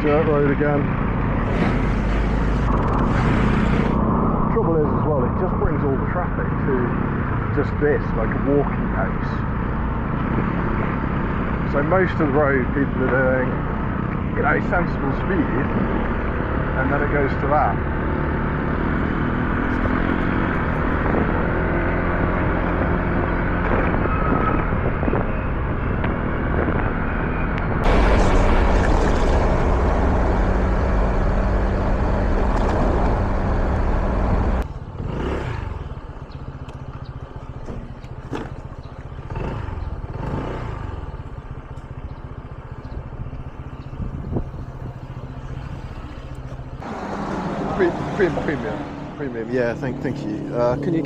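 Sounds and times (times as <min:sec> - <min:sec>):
vehicles passing by: 0:00.0 - 0:51.0
wind noise on microphone: 0:19.8 - 0:31.5, 0:43.9 - 0:45.1
scooter engine running: 0:27.8 - 0:47.8.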